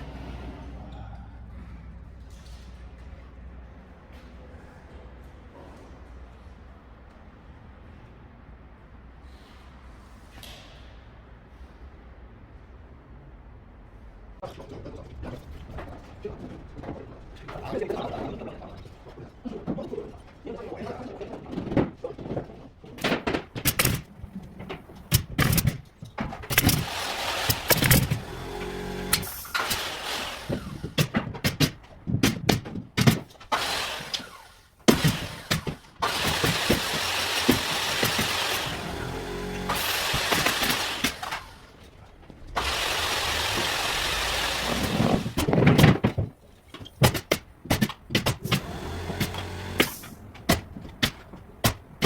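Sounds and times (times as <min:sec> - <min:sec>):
carpentry knocks and clatter: 0:14.5 - 0:52.0
power tool hissing: 0:26.6 - 0:31.0, 0:33.5 - 0:41.6, 0:42.6 - 0:45.5, 0:48.4 - 0:50.2
sharp knocks: 0:30.5 - 0:33.7, 0:44.6 - 0:52.0.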